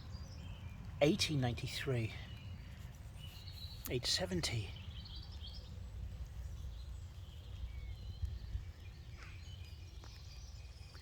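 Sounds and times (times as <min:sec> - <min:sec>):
bird calls and chirps: 0:00.0 - 0:11.0
wind on microphone: 0:06.0 - 0:11.0.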